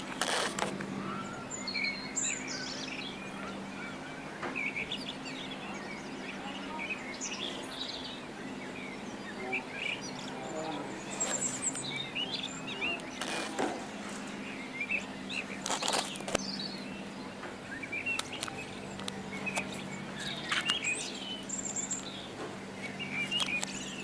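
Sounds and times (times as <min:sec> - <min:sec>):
sharp clicks or rustles: 0:00.0 - 0:00.9, 0:15.6 - 0:16.4
small birds chirping: 0:00.0 - 0:24.0
steady low hum: 0:00.0 - 0:24.0.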